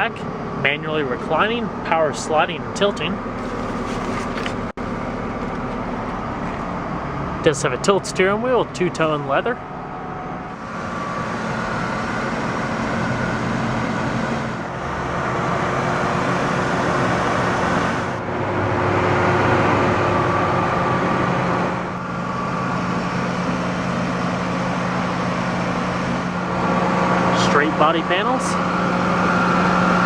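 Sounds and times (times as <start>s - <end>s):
car engine idling: 2.8s - 7.4s.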